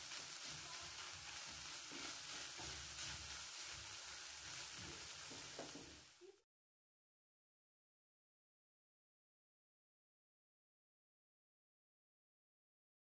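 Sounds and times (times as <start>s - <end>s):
wooden spatula scraping a pan: 0.0s - 6.2s
meat sizzling in a frying pan: 0.0s - 6.4s.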